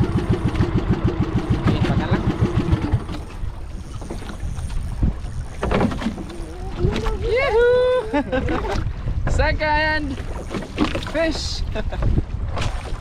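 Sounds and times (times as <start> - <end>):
small boat motor pulsing: 0.0 - 9.2.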